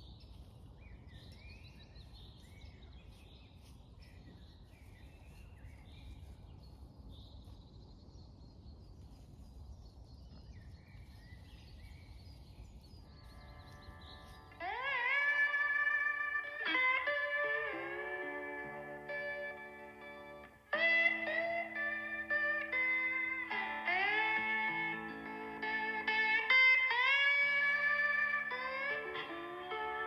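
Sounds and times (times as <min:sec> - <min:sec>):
songbirds singing: 0:00.0 - 0:30.0
guitar music: 0:13.5 - 0:30.0.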